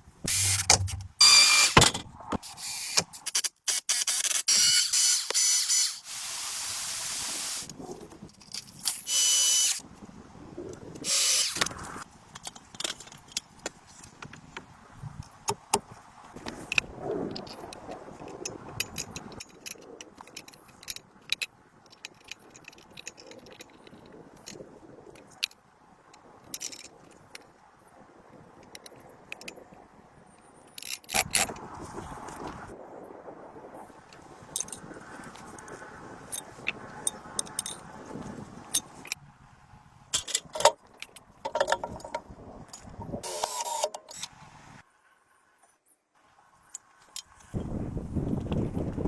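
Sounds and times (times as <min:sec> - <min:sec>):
tools clicking and knocking: 0:00.3 - 0:05.8, 0:11.0 - 0:13.8, 0:15.2 - 0:25.6, 0:36.3 - 0:37.9, 0:40.1 - 0:44.3
bursts of hissing: 0:05.8 - 0:07.7.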